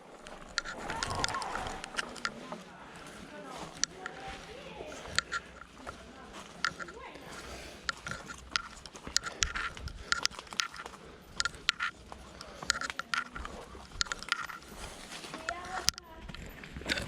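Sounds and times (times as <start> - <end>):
footsteps crunching forest litter: 0.0 - 17.0.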